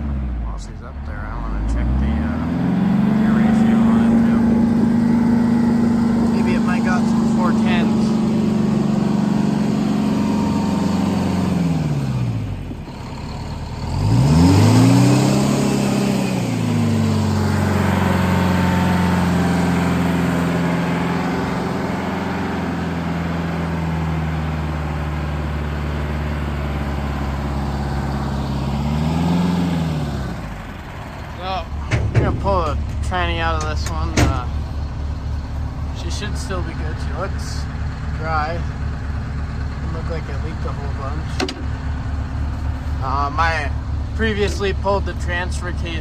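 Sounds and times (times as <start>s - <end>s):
diesel loader engine revving: 0.0s - 46.0s.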